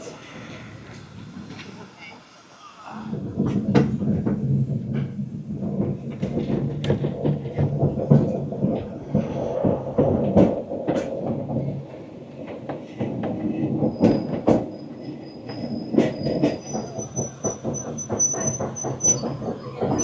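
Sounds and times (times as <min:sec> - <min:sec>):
train wheels clicking over rail joints: 0:03.1 - 0:20.0
high wheel-flange squeal: 0:13.9 - 0:20.0.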